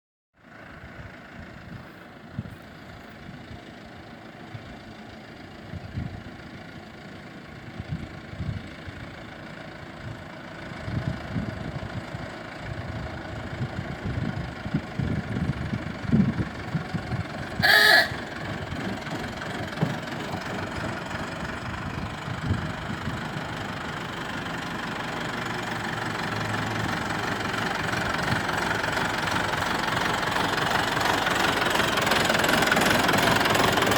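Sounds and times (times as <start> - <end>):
tractor engine knocking: 0.5 - 33.9
brief high tone: 17.6 - 18.3.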